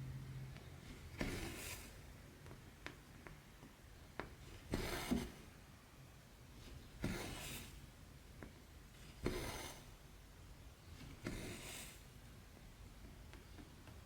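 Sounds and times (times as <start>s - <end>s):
thread rasping through fabric: 9.2s - 10.0s.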